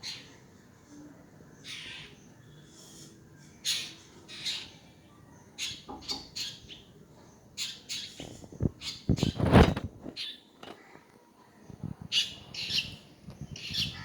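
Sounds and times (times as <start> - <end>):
low thumps and rustles: 8.2 - 10.8.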